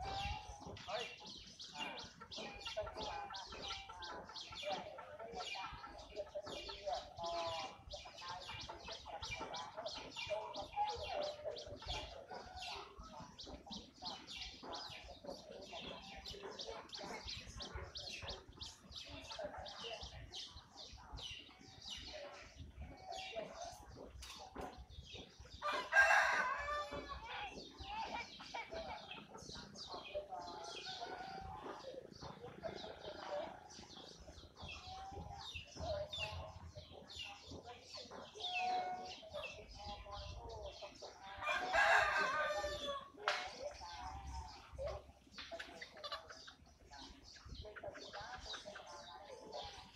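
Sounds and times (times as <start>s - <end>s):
birds chirping rapidly: 0.0s - 49.9s
lower chattering layer: 0.0s - 49.9s.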